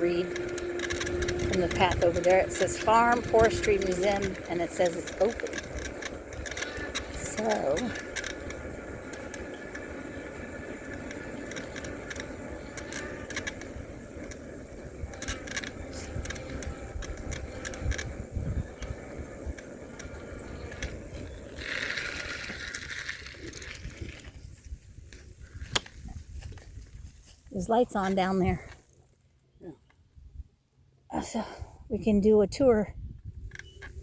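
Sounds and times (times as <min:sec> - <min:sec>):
steady low rumble: 0:00.0 - 0:28.7
bicycle rattles and clicks: 0:00.0 - 0:29.3, 0:33.2 - 0:34.0.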